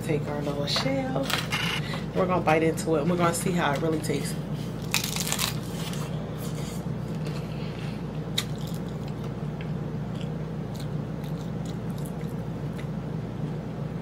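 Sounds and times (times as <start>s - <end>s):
crunchy chewing: 4.8s - 13.0s.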